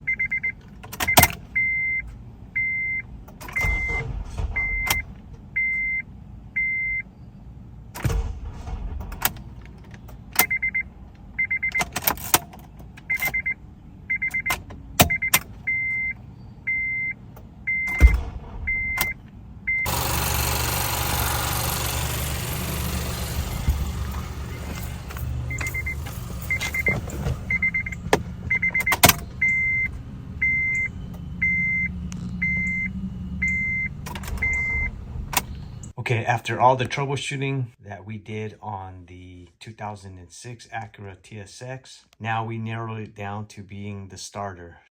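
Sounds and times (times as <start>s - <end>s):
dashboard warning chime beeping: 0.0s - 7.1s, 10.4s - 12.0s, 13.1s - 35.8s
car engine running: 7.2s - 35.9s
starter motor clicks: 19.8s - 29.6s.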